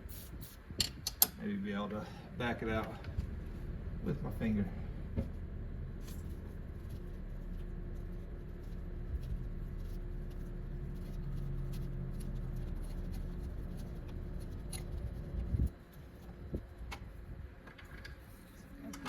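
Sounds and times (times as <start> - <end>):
steady low hum: 0.0 - 19.0
metallic ticks and scraping: 6.0 - 19.0.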